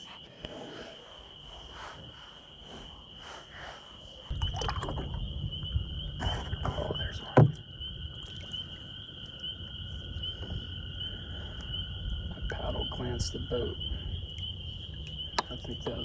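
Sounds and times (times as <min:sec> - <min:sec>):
high insect trill: 0:00.0 - 0:16.0
low rumble: 0:03.8 - 0:08.2.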